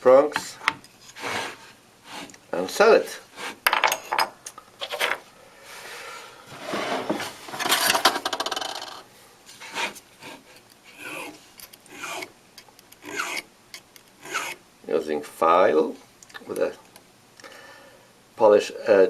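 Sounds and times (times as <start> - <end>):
file rasping on metal: 9.6 - 12.3, 13.0 - 13.5, 14.2 - 14.6.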